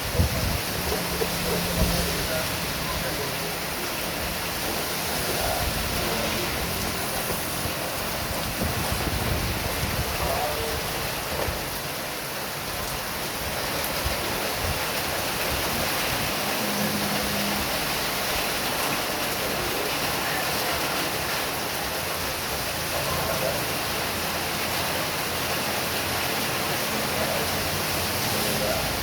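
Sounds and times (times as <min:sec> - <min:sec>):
strong wind: 0:00.0 - 0:20.2
heavy rain pouring: 0:00.0 - 0:29.0.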